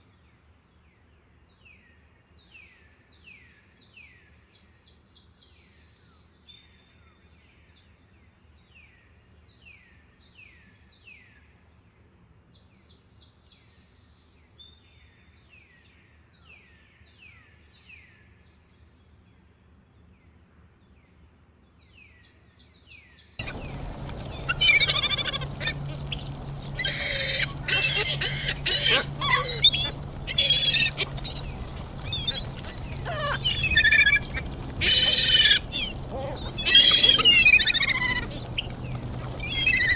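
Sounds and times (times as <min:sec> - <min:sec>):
bird chirping: 0:23.4 - 0:39.9
birds singing: 0:23.4 - 0:39.9.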